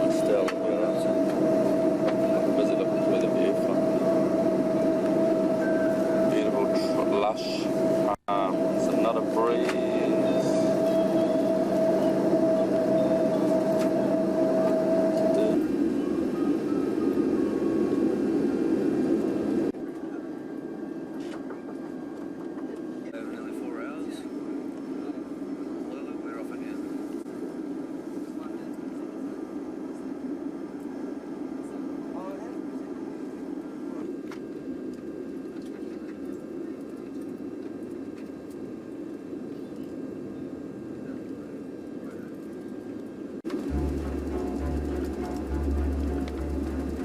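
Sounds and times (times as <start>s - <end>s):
jet engine and airflow rumble: 0.0s - 47.0s.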